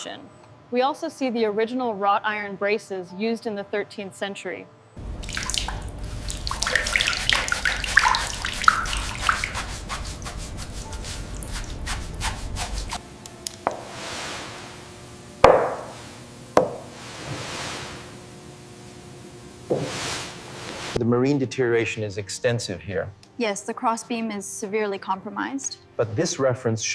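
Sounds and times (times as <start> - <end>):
sharp water drops: 5.0 - 12.2
water dripping and trickling: 5.0 - 13.0.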